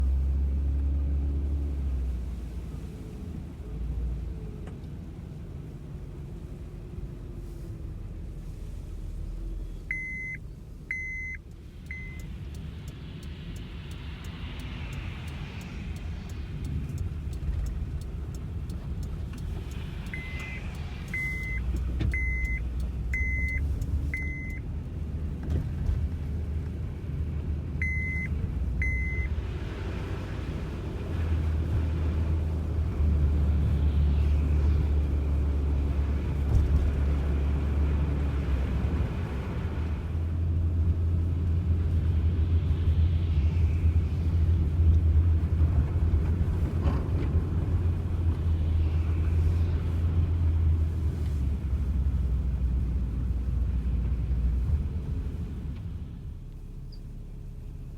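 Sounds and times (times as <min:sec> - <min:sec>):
vehicle engine rumbling: 0:00.0 - 0:57.9
reverse warning beeper: 0:09.9 - 0:12.3, 0:20.1 - 0:24.6, 0:27.8 - 0:29.3.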